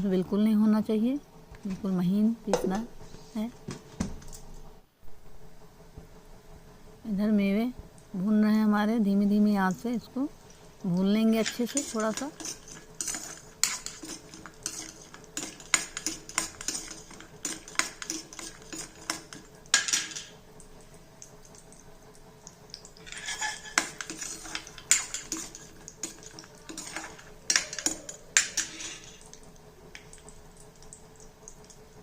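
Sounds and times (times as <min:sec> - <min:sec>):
spatula scraping nuts in pan: 0:11.2 - 0:20.2, 0:23.0 - 0:29.3.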